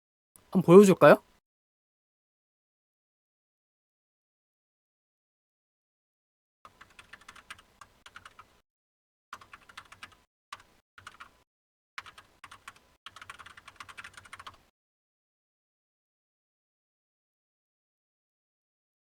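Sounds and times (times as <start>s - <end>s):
typing on computer keyboard: 6.7s - 8.6s, 9.4s - 11.4s, 12.0s - 14.7s.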